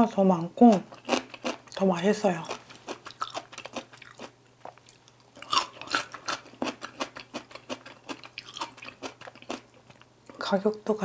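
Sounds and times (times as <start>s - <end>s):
person chewing food: 0.8s - 1.8s, 2.4s - 10.1s.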